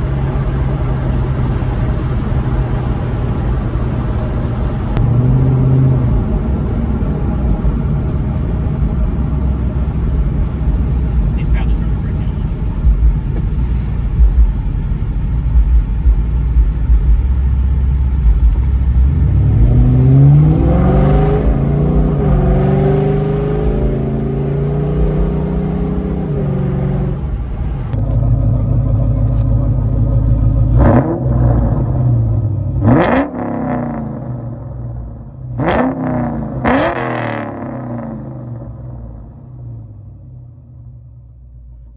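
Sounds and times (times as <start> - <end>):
car exhaust rumble revving: 0.0 - 41.9
sharp throttle blips: 11.2 - 29.3.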